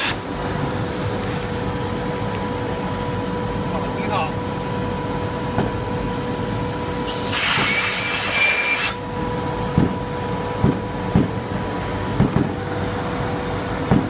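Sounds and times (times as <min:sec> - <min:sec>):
plasma torch hissing: 0:00.0 - 0:01.4, 0:07.0 - 0:12.6
machine hum with high whine: 0:00.0 - 0:14.0.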